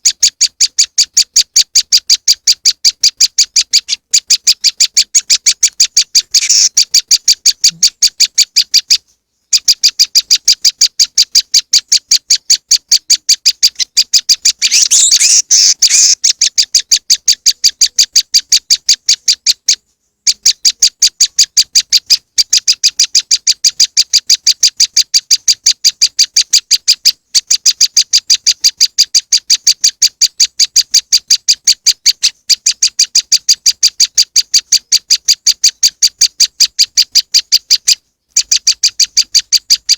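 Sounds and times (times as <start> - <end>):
bird call high chip notes: 6.4 - 6.8, 14.5 - 16.2.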